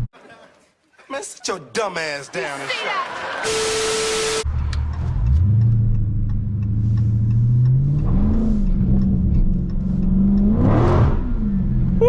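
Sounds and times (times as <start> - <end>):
car engine accelerating: 3.4 - 12.0.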